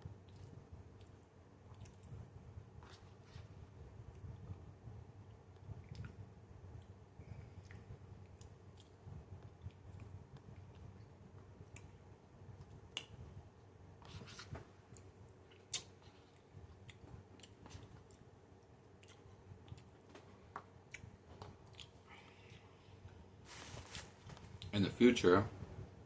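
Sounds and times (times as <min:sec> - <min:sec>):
mouth clicks and smacks: 0:00.2 - 0:02.2, 0:05.5 - 0:06.2, 0:12.6 - 0:13.2, 0:15.0 - 0:18.3
person chewing food: 0:00.2 - 0:02.2, 0:05.2 - 0:12.0, 0:14.9 - 0:23.0.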